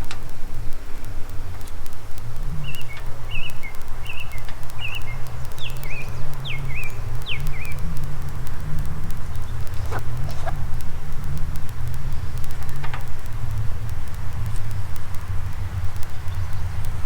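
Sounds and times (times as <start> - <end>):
steady low rumble: 0.0 - 17.0
bird chirping: 2.5 - 10.8, 16.0 - 17.0.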